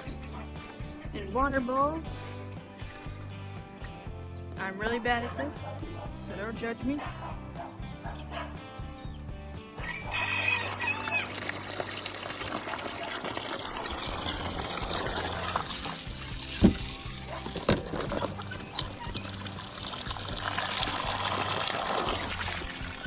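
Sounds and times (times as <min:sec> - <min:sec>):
background music: 0:00.0 - 0:23.0
water splashing into a trough: 0:09.8 - 0:23.0.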